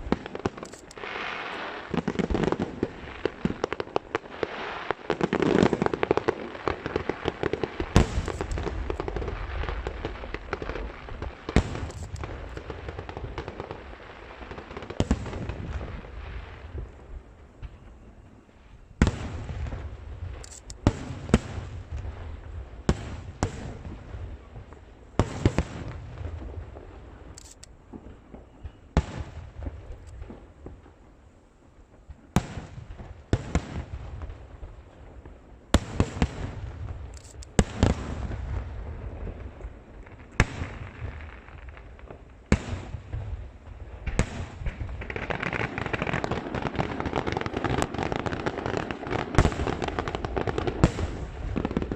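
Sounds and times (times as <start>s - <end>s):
firework crackle: 0.0s - 51.9s
firework bangs with rumbling echo: 1.8s - 13.9s, 32.0s - 51.9s.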